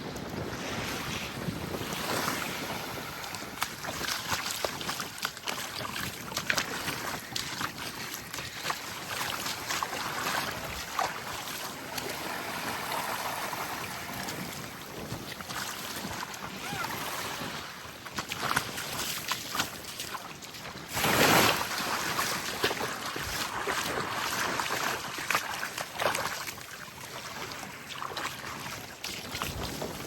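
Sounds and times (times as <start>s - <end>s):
wind buffeting microphone: 0.0s - 18.0s, 29.3s - 30.0s
small waves lapping on shore: 0.0s - 30.0s.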